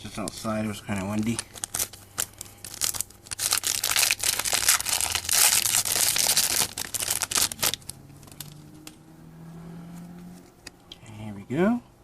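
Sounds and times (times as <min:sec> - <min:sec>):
foil wrapper crinkling and tearing: 0:00.1 - 0:08.6.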